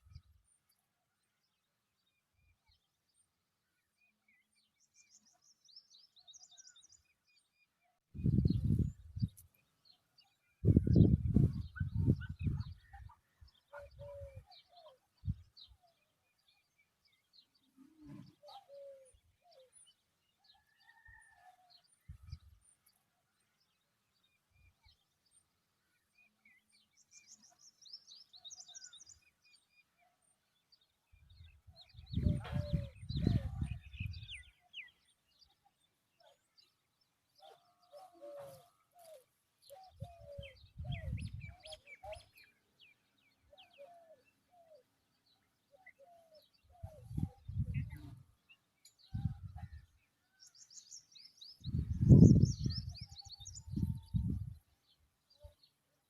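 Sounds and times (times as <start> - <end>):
birds chirping and calling: 8.2 - 21.2, 31.2 - 55.8.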